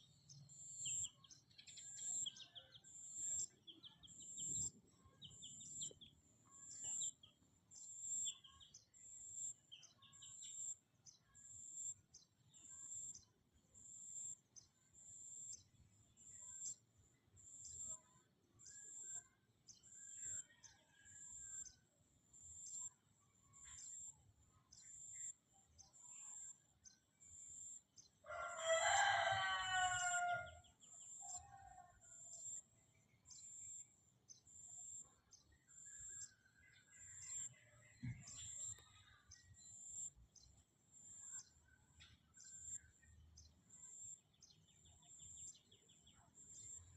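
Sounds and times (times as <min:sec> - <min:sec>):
rooster crowing: 0:28.2 - 0:30.6.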